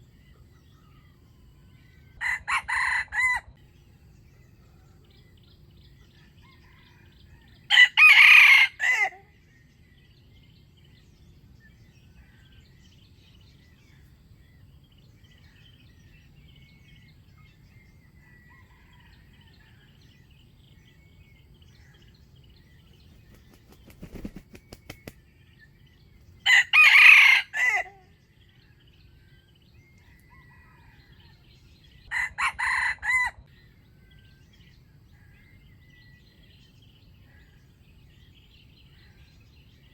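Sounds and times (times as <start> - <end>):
rooster crowing: 2.2 - 3.6, 6.2 - 9.3, 18.2 - 20.0, 26.4 - 28.1, 30.1 - 31.5, 32.1 - 33.5
small birds chirping: 8.8 - 39.9.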